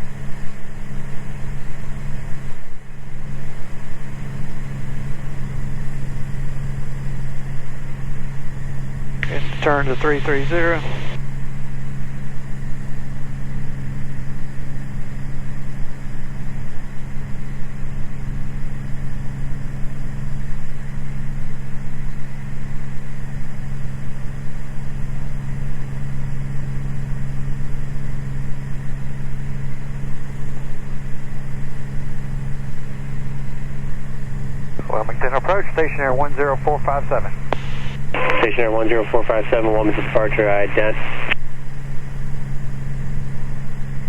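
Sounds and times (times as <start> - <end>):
propeller plane engine drone: 0.0 - 44.0.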